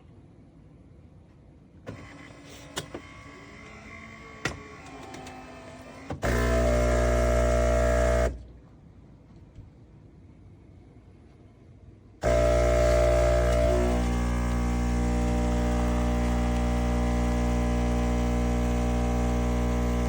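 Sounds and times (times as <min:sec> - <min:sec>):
coffee machine buzzing: 0:06.2 - 0:08.4, 0:12.2 - 0:20.0.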